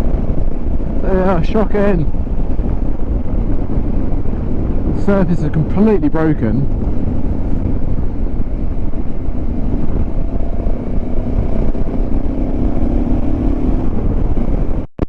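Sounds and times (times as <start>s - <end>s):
motorcycle engine: 0.0s - 14.9s
wind and road noise: 0.0s - 15.0s.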